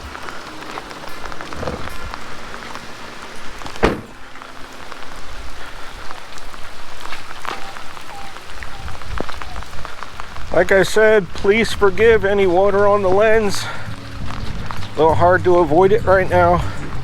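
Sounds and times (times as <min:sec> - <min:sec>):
rain falling: 0:00.0 - 0:17.0
sharp knocks: 0:03.8 - 0:04.2.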